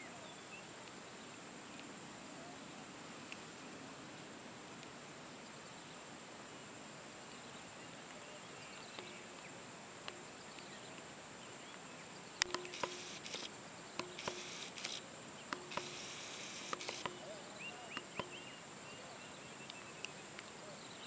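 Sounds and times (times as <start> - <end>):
insects chirping: 0.0 - 21.0
steady hiss: 0.0 - 21.0
short rasping buzzes: 12.4 - 17.2
sharp clicks: 12.4 - 17.3, 17.9 - 18.4.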